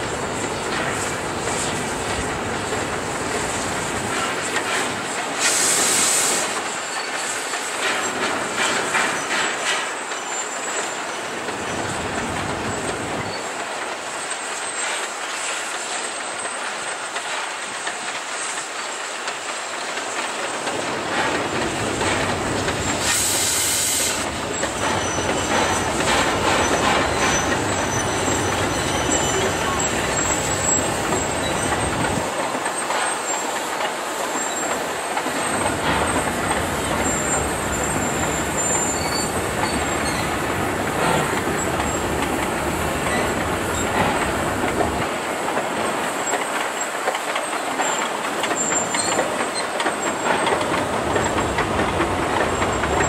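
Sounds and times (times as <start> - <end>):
steam locomotive exhaust: 0.0 - 10.7, 21.1 - 53.0
high steam hiss bursts: 0.0 - 53.0
train wheels clattering on rails: 0.0 - 53.0.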